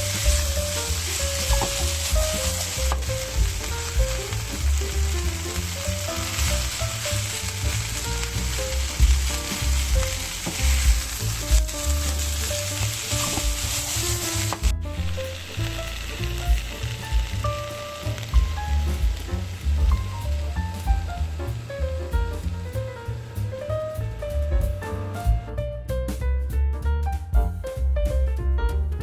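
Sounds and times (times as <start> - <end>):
soft background music: 0.0 - 29.0.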